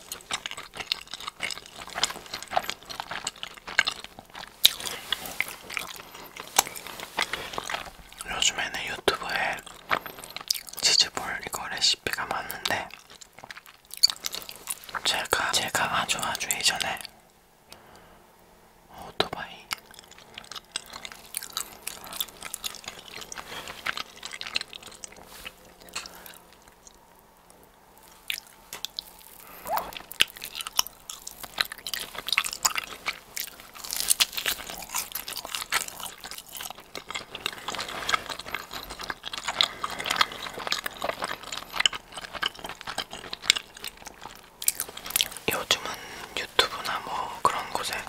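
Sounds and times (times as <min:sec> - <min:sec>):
crunchy chewing: 0:00.0 - 0:18.0, 0:19.6 - 0:48.0
wet mouth sounds: 0:19.7 - 0:27.0, 0:28.0 - 0:48.0.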